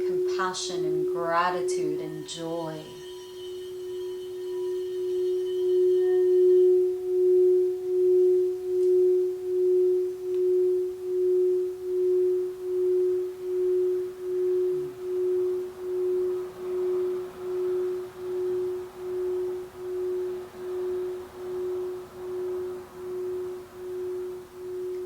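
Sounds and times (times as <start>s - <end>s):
singing bowl sustained tone: 0.0s - 25.0s.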